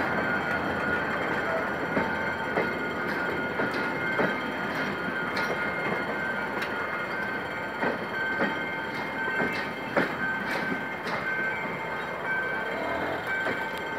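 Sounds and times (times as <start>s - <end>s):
train coaches rolling past: 0.0s - 13.9s
wheel clacks over rail joints: 1.4s - 11.4s.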